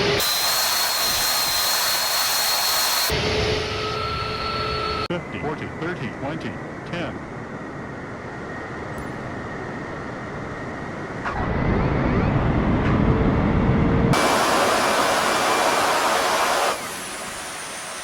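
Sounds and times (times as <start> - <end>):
aircraft low rumble: 3.1 - 18.0
loud rushing noise: 11.1 - 18.0.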